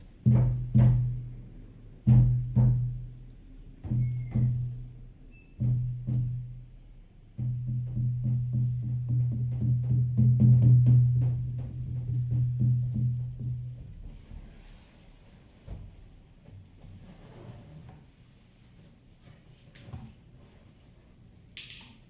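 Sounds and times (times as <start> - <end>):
deep frame drums beating: 0.0 - 14.5.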